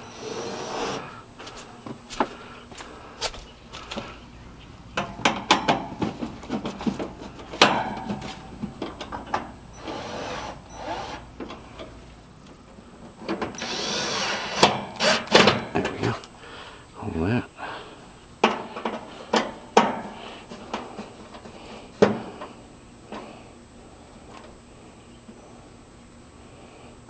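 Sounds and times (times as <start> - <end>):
power drill driving screws: 0.0 - 1.0, 9.8 - 11.3, 13.6 - 15.6.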